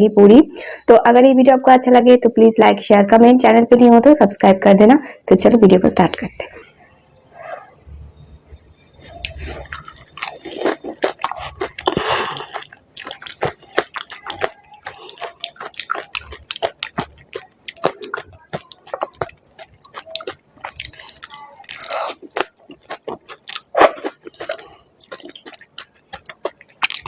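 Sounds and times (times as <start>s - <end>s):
crunching crisp fried shells: 9.2s - 27.0s.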